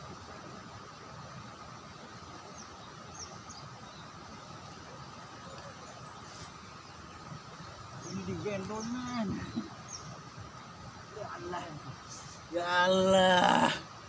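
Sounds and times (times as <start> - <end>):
faint steady tone: 0.0 - 14.0
steady hiss: 0.0 - 14.0
faint bird chirps: 1.9 - 11.4.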